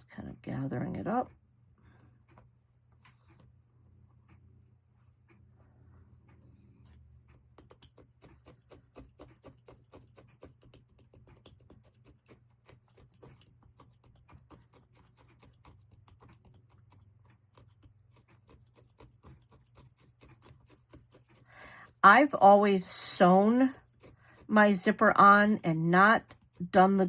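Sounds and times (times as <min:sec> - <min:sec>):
felting needle soft ticks: 0:06.2 - 0:22.0
low steady hum: 0:21.5 - 0:27.0.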